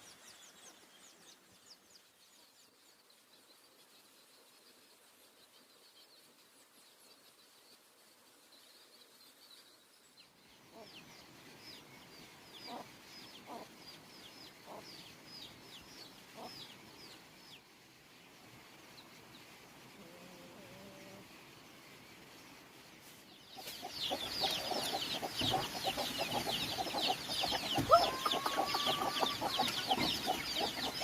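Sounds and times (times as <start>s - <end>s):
chicks peeping: 12.6s - 17.2s, 23.5s - 31.0s
chickens clucking: 12.7s - 13.8s, 14.5s - 14.9s, 23.5s - 31.0s.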